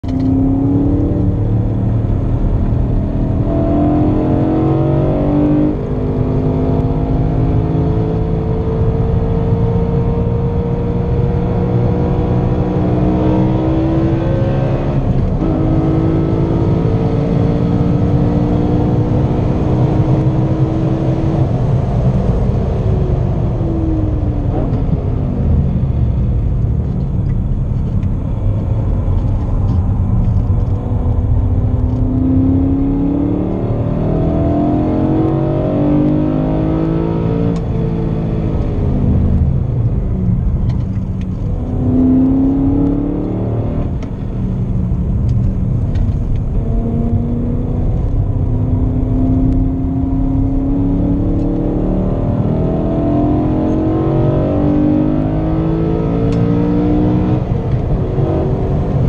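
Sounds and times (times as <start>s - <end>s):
car engine accelerating: 0.0s - 59.0s
road and wind rumble: 0.0s - 59.0s.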